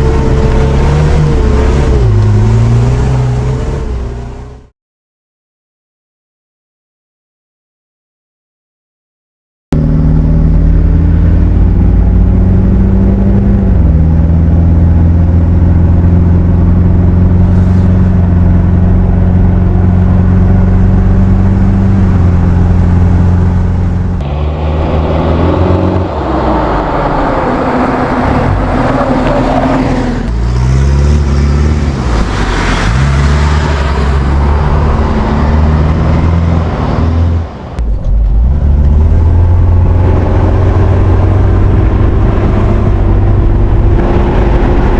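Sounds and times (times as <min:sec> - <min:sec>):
off-road vehicle engine revving: 0:00.0 - 0:04.7, 0:09.8 - 0:44.9
rushing noise: 0:19.8 - 0:44.9.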